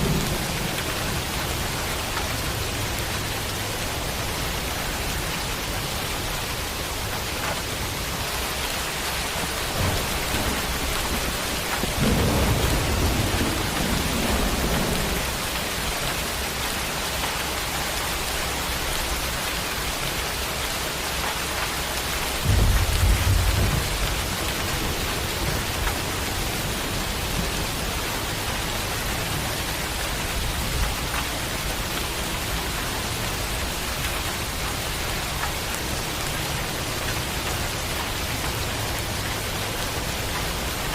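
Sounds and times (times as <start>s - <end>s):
thunder rolling: 0.0s - 2.2s, 9.4s - 15.8s, 22.4s - 27.9s
steady rain falling: 0.0s - 40.9s.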